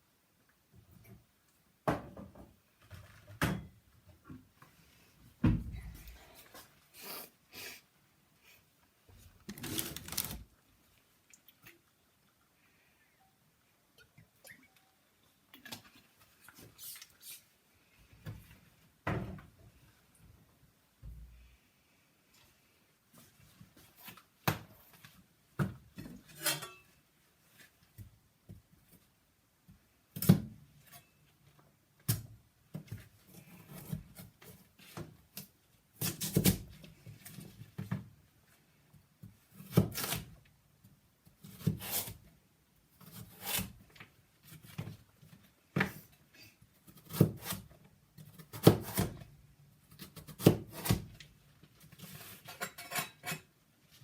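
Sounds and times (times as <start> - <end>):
knife scraping vegetables: 41.4 - 42.2, 43.0 - 43.8.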